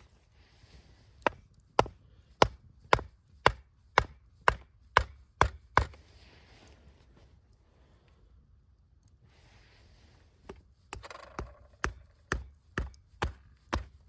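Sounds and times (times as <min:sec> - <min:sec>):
blade chopping wood: 0:01.2 - 0:06.0, 0:10.5 - 0:14.0.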